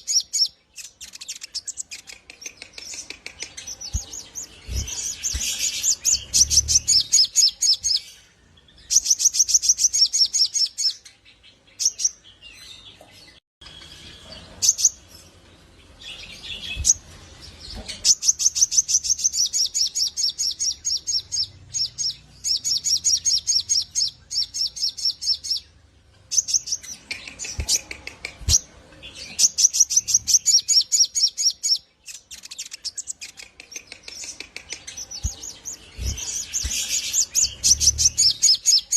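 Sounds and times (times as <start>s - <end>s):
bird singing rapid high notes: 0.0s - 8.2s.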